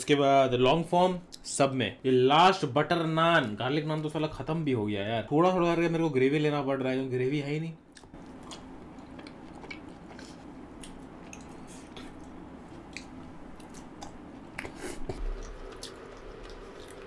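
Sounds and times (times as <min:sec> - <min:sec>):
person chewing food: 0:07.9 - 0:17.0.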